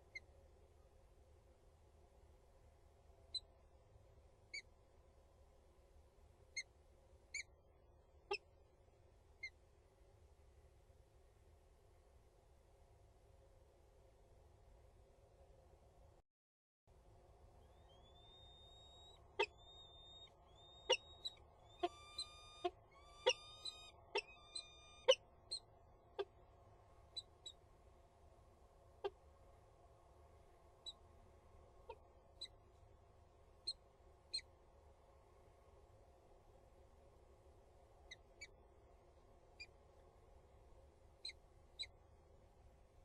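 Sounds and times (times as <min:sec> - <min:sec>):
falcon calling: 0:17.7 - 0:25.2.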